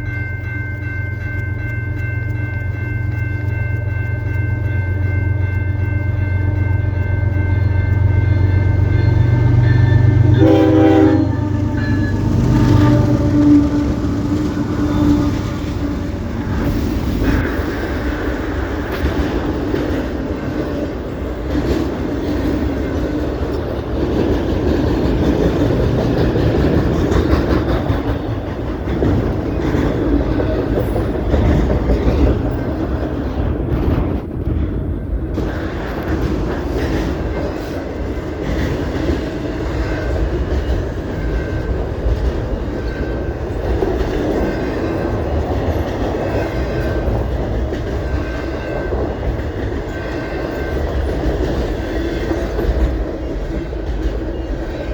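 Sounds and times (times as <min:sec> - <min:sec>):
wheels clacking over rail joints: 0:05.4 - 0:54.9
locomotive air horn: 0:09.7 - 0:16.2.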